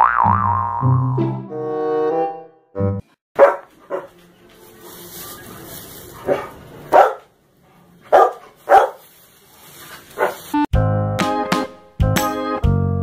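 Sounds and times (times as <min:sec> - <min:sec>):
dog barking: 0:03.4 - 0:04.2, 0:06.2 - 0:09.1, 0:10.2 - 0:10.5.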